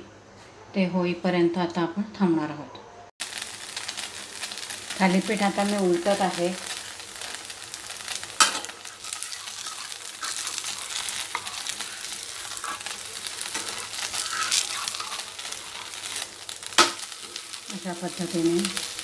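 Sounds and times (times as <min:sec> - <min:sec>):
flatbread sizzling in oil: 0:03.2 - 0:19.0
spatula scraping a pan: 0:06.6 - 0:18.3.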